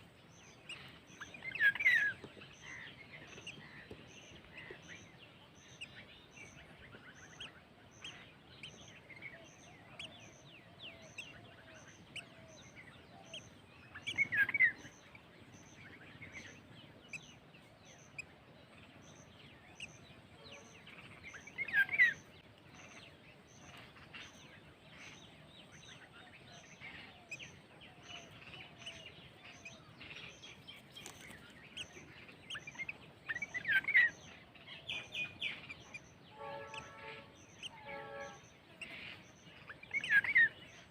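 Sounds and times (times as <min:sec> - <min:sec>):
small bird chirps and warbles: 0:00.0 - 0:40.9
downward-sweeping bird calls: 0:31.8 - 0:40.6.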